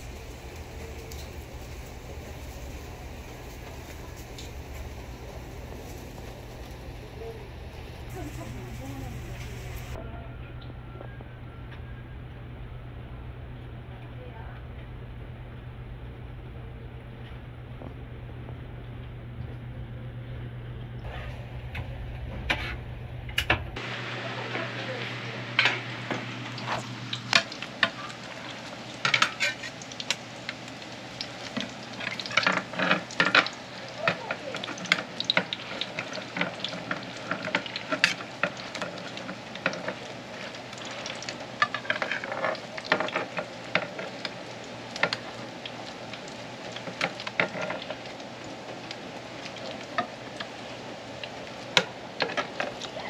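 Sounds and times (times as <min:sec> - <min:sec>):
dough sizzling in oil: 0:00.0 - 0:10.0, 0:23.8 - 0:53.0.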